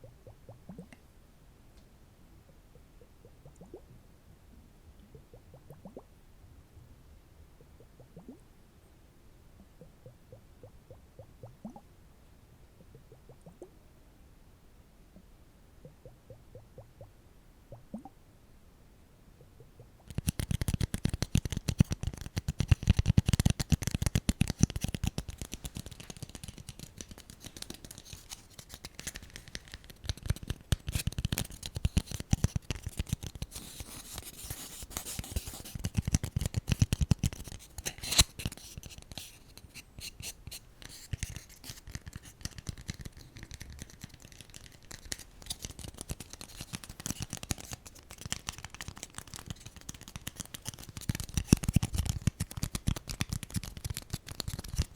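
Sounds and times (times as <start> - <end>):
tapping and scratching on small objects: 20.0 - 54.9.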